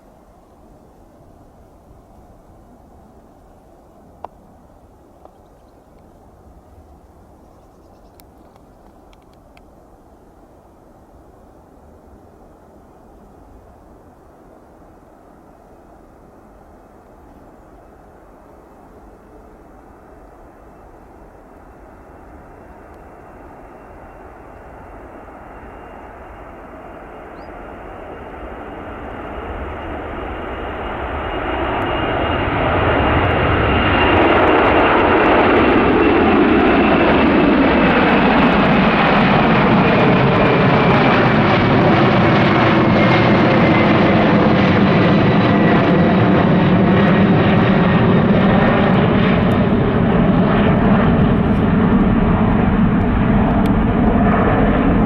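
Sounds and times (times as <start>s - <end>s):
jet engines roaring: 21.4s - 55.0s.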